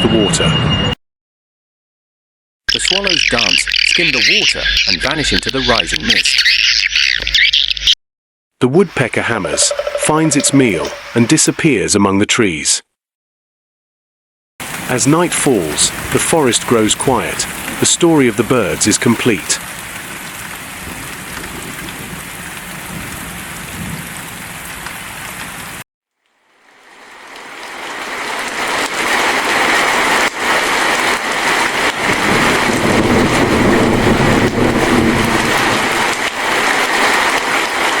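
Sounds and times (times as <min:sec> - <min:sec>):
heavy downpour: 0:08.8 - 0:11.6, 0:14.6 - 0:25.8, 0:26.4 - 0:38.0
steady rain: 0:08.9 - 0:11.4, 0:14.6 - 0:38.0.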